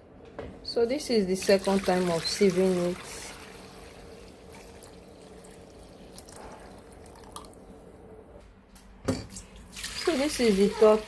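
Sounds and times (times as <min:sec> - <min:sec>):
liquid trickling through sieve: 0:01.4 - 0:07.6.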